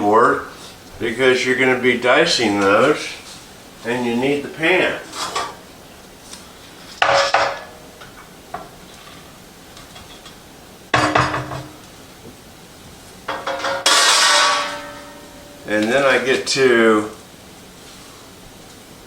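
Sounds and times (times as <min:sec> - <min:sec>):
metal pan knocking and scraping: 0:07.0 - 0:07.8, 0:11.0 - 0:11.8, 0:13.3 - 0:15.6.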